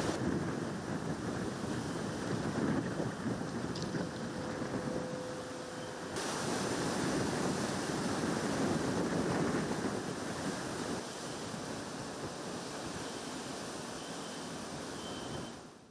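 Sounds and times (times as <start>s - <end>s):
hurricane wind and rain: 0.0s - 15.9s.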